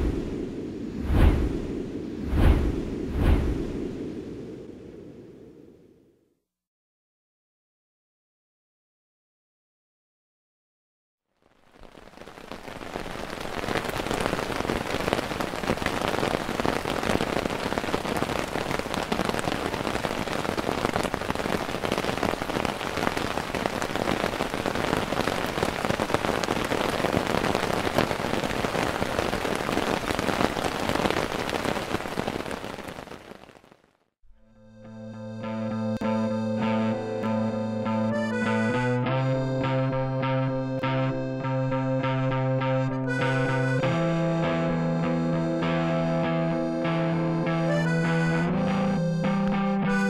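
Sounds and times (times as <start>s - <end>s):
steady rain falling: 11.4s - 34.0s, 36.0s - 38.8s, 39.4s - 50.0s.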